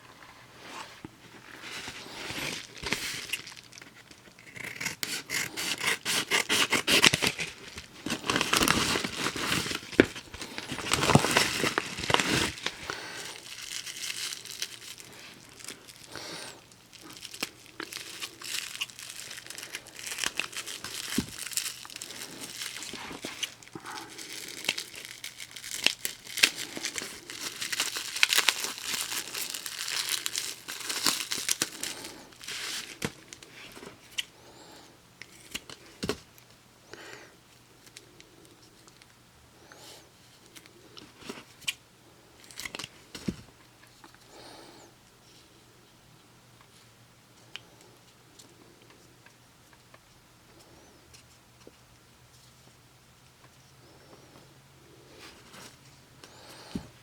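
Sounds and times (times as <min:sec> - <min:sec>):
paper wrapper crinkling and tearing: 0:01.5 - 0:34.3, 0:42.4 - 0:42.9.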